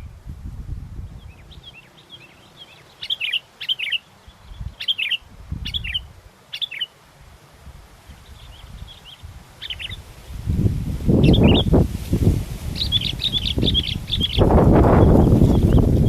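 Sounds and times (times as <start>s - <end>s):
wind buffeting microphone: 0.0s - 1.9s, 4.3s - 6.3s, 7.2s - 16.0s
birds chirping: 1.0s - 7.0s, 8.0s - 10.2s, 11.1s - 11.8s, 12.6s - 16.0s.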